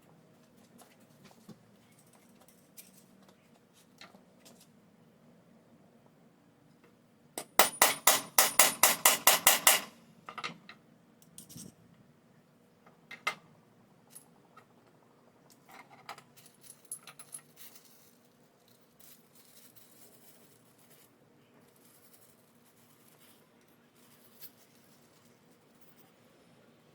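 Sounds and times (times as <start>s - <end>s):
tools knocking and clicking: 7.4s - 11.7s.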